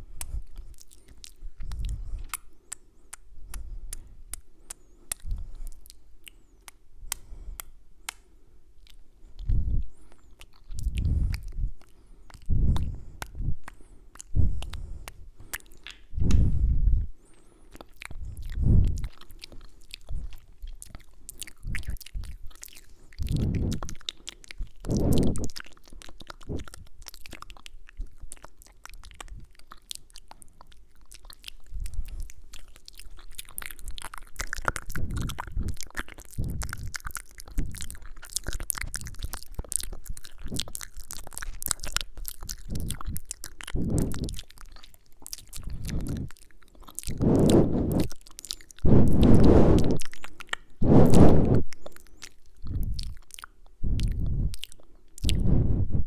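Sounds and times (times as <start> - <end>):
wet mouth sounds and lip smacks: 0.0 - 56.0
soft low thumps: 55.2 - 56.0.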